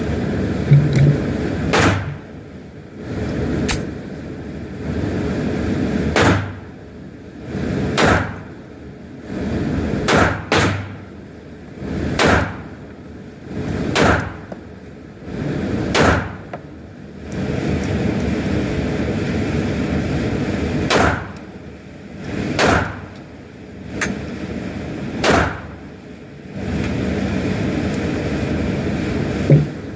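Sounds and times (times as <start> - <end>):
handgun shots with echo: 1.7 - 2.1, 6.2 - 6.6, 8.0 - 8.4, 10.1 - 10.9, 12.2 - 12.6, 14.0 - 14.4, 15.9 - 16.4, 20.9 - 21.3, 22.6 - 23.0, 25.2 - 25.6.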